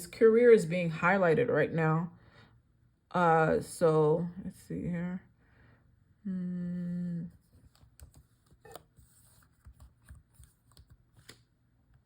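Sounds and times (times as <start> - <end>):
woman humming hmm: 6.2 - 7.4.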